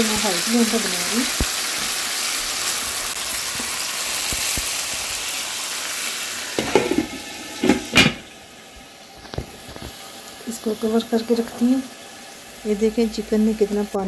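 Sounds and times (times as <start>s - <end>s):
chicken sizzling in a pan: 0.0s - 14.0s
glass lid knocking on pan: 6.6s - 8.2s.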